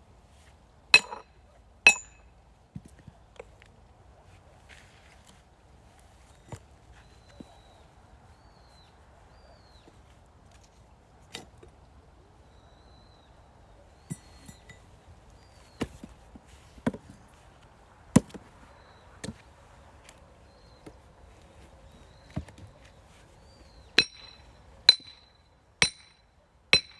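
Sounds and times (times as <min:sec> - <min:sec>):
firewood chopping strikes: 0:01.0 - 0:01.2, 0:01.9 - 0:02.2, 0:18.2 - 0:18.5, 0:24.0 - 0:26.1.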